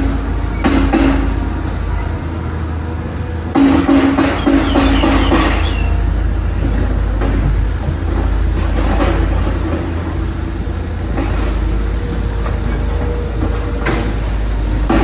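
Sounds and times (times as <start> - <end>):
heavy machinery engine rumbling: 0.0 - 15.0
clatter and hiss: 3.5 - 15.0.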